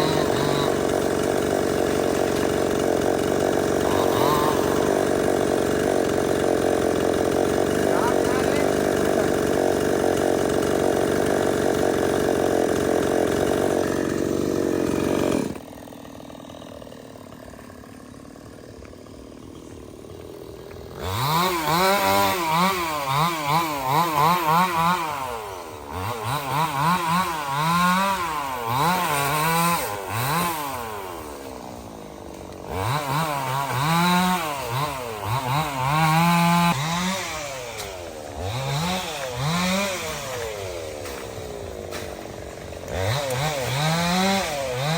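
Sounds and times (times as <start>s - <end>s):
chainsaw revving and idling: 0.0s - 44.9s.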